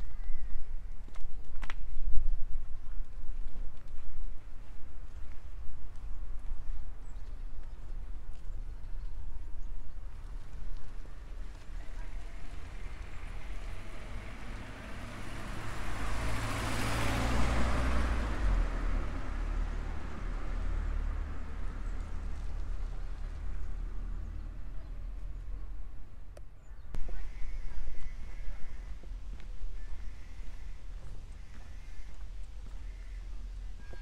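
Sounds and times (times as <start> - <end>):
car passing by: 11.2 - 26.0
steady low rumble: 24.7 - 33.8.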